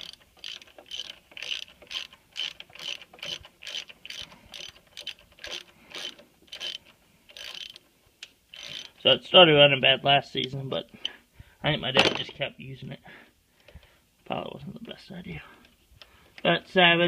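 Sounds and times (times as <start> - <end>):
ratchet wrench clicking: 0.0 - 7.8, 8.5 - 9.0.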